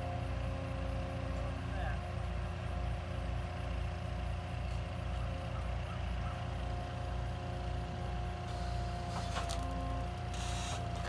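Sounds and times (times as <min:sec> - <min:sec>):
diesel engine running: 0:04.3 - 0:11.0.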